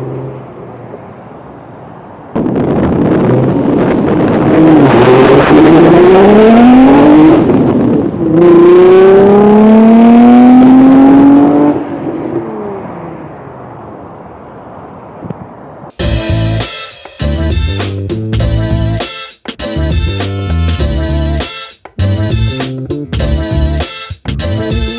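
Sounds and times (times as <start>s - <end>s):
car engine revving: 2.4s - 13.4s.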